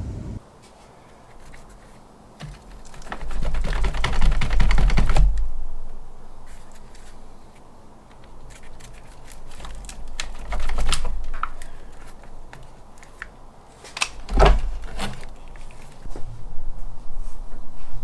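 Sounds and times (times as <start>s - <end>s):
clicks and rattles of plastic parts: 2.4s - 5.5s, 8.1s - 16.0s.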